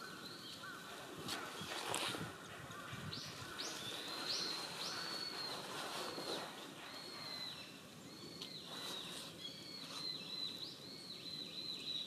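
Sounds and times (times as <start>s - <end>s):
small birds whistling: 3.2s - 12.0s.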